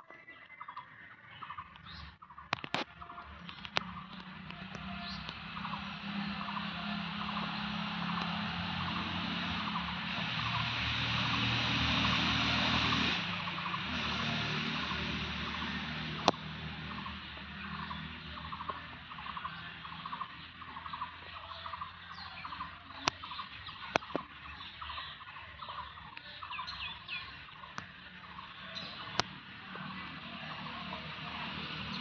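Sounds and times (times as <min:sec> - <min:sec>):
birds chirping: 0:00.0 - 0:32.0
sharp clicks: 0:01.6 - 0:06.6, 0:16.2 - 0:16.5, 0:23.0 - 0:24.7, 0:28.8 - 0:29.4.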